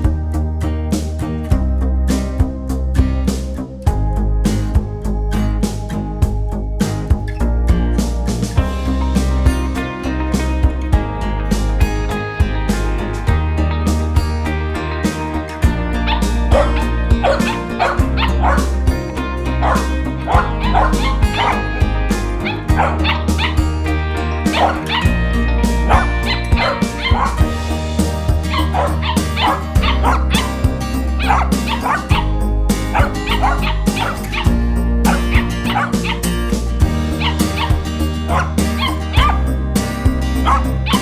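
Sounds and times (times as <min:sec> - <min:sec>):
music with bass beat: 0:10.4 - 0:41.0
dog yipping and whimpering: 0:16.1 - 0:18.7, 0:19.6 - 0:21.7, 0:22.4 - 0:23.6, 0:24.5 - 0:25.2, 0:25.9 - 0:27.5, 0:28.5 - 0:30.6, 0:31.2 - 0:32.3, 0:32.9 - 0:36.3, 0:37.2 - 0:39.5, 0:40.4 - 0:41.0.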